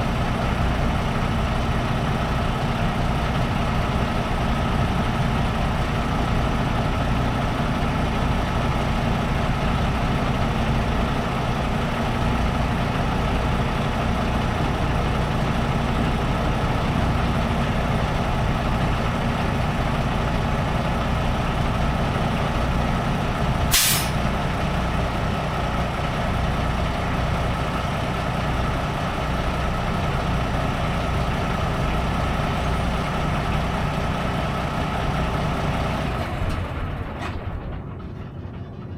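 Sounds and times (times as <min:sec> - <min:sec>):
diesel truck engine running: 0:00.0 - 0:38.9
air brake hiss: 0:23.7 - 0:24.3.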